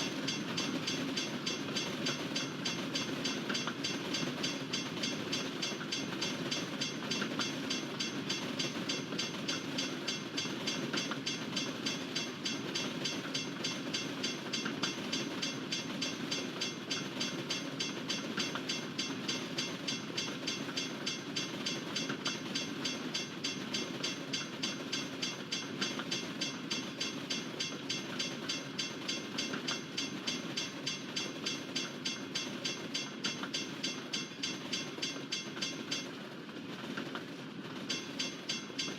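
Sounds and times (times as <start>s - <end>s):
train wheels clicking over rail joints: 0.0s - 38.9s.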